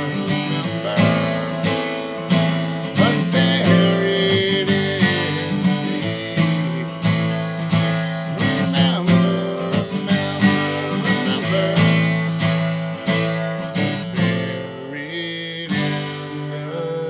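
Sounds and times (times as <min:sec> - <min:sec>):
acoustic guitar strumming chords: 0:00.0 - 0:17.0
person singing a word: 0:02.8 - 0:07.0, 0:08.3 - 0:12.3.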